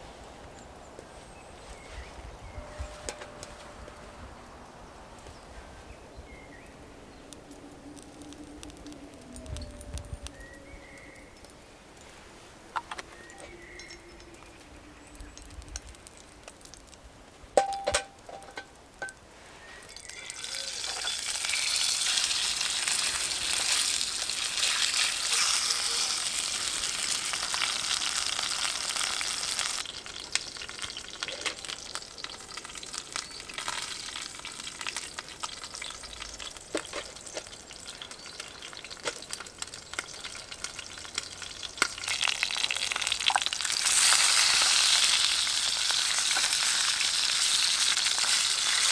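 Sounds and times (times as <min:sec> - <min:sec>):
food sizzling in a pan: 0:19.9 - 0:39.0, 0:39.8 - 0:48.9.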